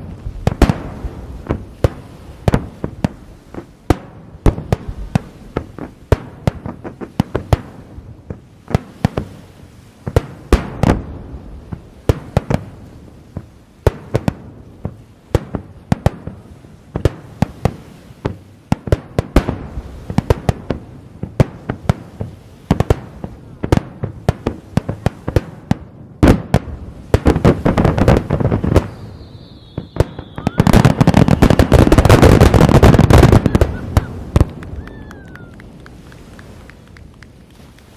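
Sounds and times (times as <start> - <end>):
firework crackling: 0.0 - 8.1, 10.1 - 37.9
firework shells bursting: 27.2 - 36.0.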